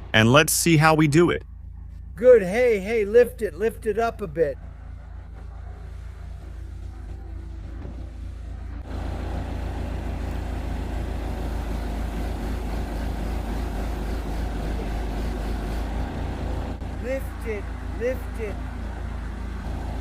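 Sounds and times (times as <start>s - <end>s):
backhoe engine rumbling: 0.0s - 20.0s.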